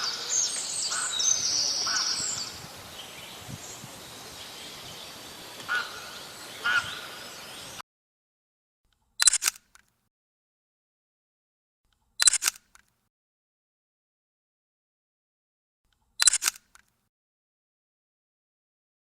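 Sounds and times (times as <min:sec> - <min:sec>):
bird chirps: 0:00.0 - 0:07.8
outdoor nature ambience: 0:00.0 - 0:07.8, 0:08.9 - 0:10.0, 0:11.9 - 0:13.0, 0:15.9 - 0:17.0
sharp clicks: 0:08.9 - 0:10.0, 0:11.9 - 0:13.0, 0:15.9 - 0:17.0.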